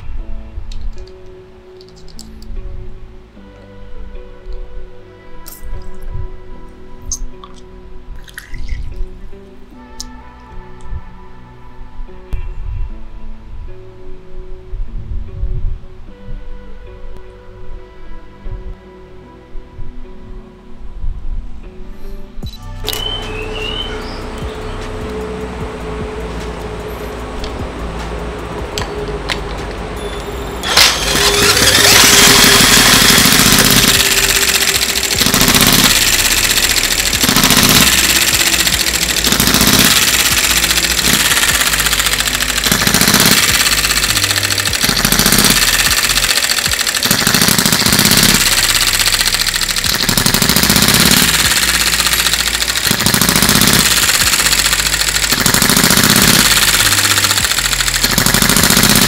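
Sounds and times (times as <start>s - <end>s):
background music: 0.0s - 59.0s
model engine running: 30.1s - 59.0s.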